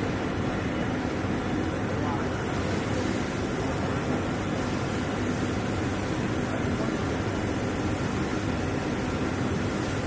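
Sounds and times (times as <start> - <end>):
machinery hiss with low hum: 0.0 - 10.0.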